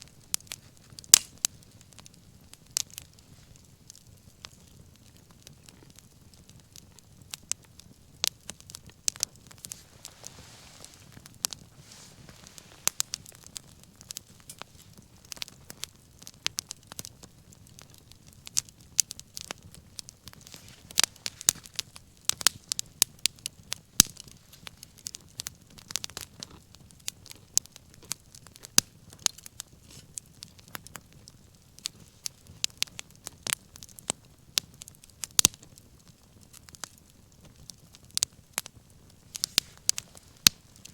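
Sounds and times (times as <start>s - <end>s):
wood fire pops and snaps: 0.0s - 40.9s
soft rush of flames: 7.8s - 33.9s, 38.4s - 40.9s.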